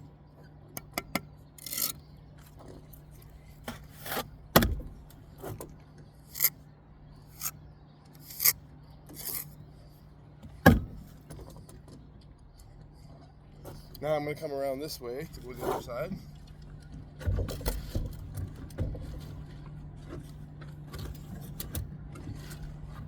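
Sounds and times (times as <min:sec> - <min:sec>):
trowel scraping mortar on brick: 0:00.8 - 0:02.0, 0:06.3 - 0:06.6, 0:07.3 - 0:07.6, 0:08.2 - 0:09.6.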